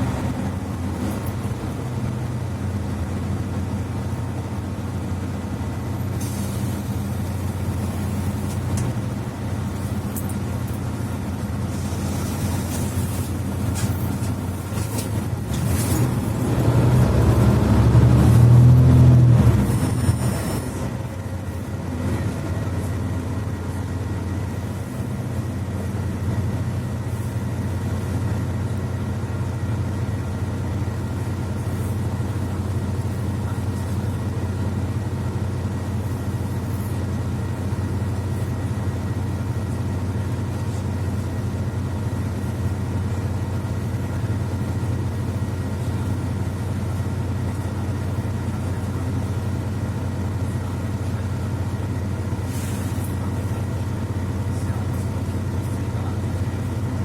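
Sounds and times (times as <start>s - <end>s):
bus engine drone: 0.0s - 57.0s.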